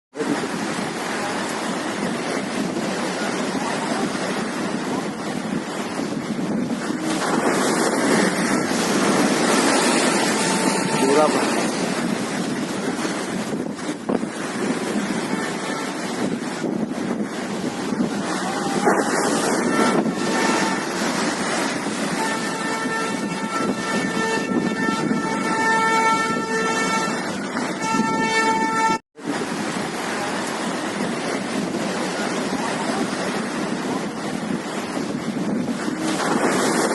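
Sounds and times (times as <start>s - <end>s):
sea waves: 0.1s - 36.9s
wind on microphone: 0.2s - 36.9s
held horn-like tone: 6.8s - 12.0s, 14.6s - 16.7s, 18.3s - 29.0s.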